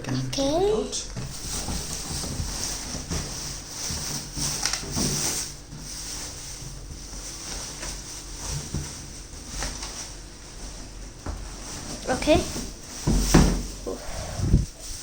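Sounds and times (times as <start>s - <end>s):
cardboard rustling and scraping: 1.2s - 15.0s.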